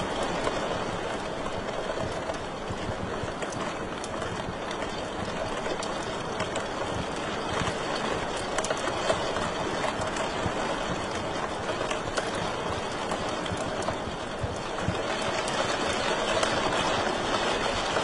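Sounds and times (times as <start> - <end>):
fire crackling in a fireplace: 0.0 - 18.0.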